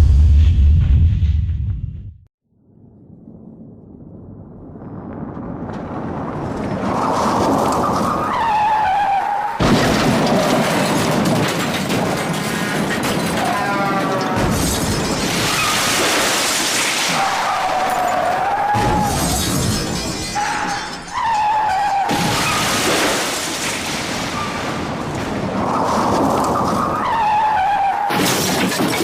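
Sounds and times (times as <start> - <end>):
rumble with wavering high tone: 0.0 - 5.7.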